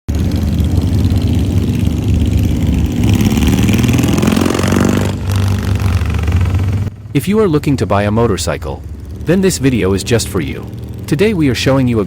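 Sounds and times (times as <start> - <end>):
motorcycle engine revving: 0.1 - 12.0.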